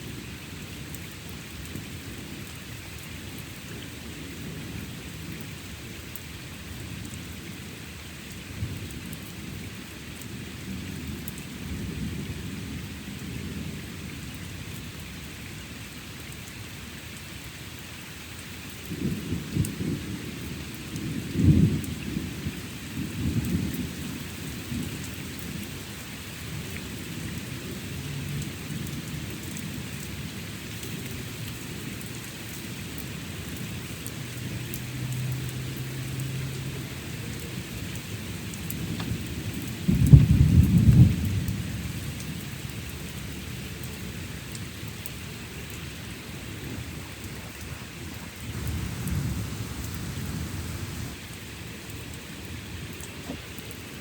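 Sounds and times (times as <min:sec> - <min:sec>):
steady rain: 0:00.0 - 0:54.0
thunder rumbling: 0:46.3 - 0:51.2.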